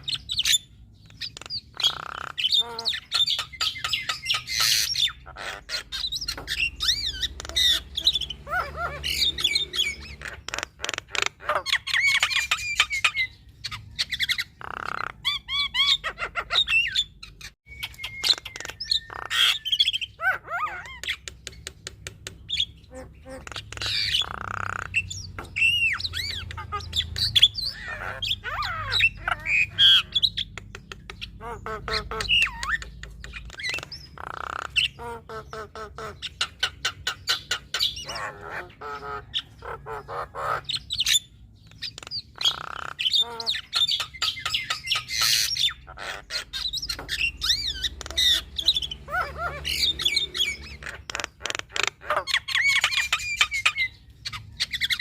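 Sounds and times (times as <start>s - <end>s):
myna bird singing: 0.0s - 55.0s.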